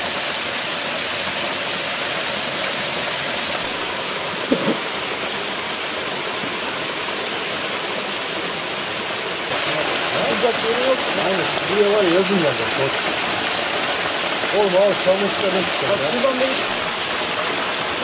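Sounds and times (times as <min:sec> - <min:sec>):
waterfall rushing: 0:00.0 - 0:18.0
brief thump: 0:04.5 - 0:04.8.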